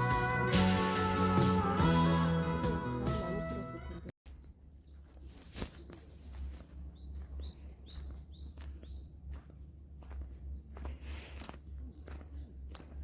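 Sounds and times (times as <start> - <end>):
small birds chirping: 3.7 - 13.0.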